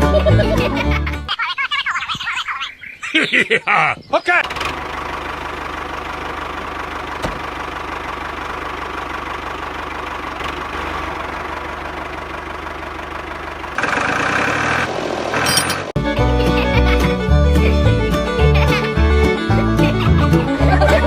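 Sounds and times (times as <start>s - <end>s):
small motor running: 13.8s - 15.5s.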